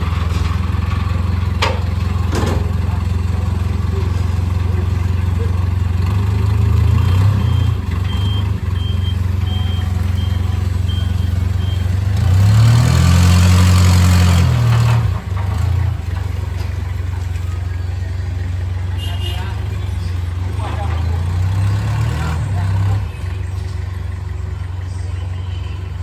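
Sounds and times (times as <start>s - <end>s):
vehicle engine running and revving: 0.0s - 26.0s
short high beeps: 7.4s - 11.9s.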